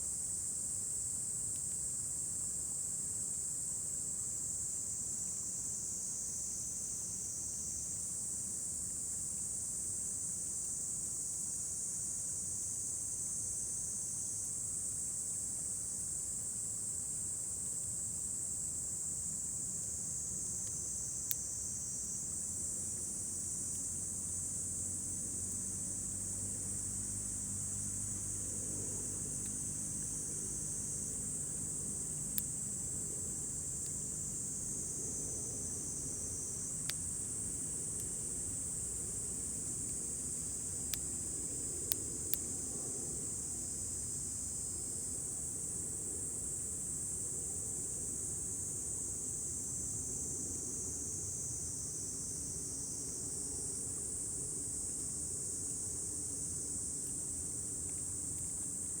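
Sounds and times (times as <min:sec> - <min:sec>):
insects chirring: 0:18.0 - 0:59.0.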